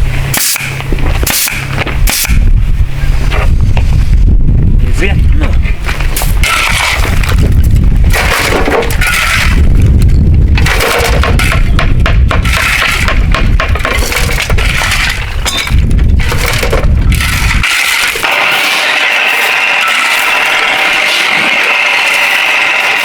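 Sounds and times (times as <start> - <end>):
steady low rumble: 0.0 - 18.4
bamboo cracking and clattering: 5.9 - 18.6.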